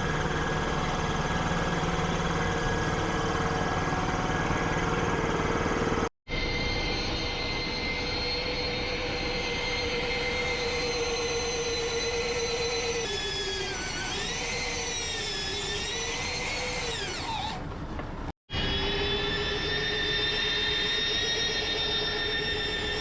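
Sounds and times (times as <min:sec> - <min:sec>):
power tool motor whining: 0:06.4 - 0:17.8, 0:18.5 - 0:23.0.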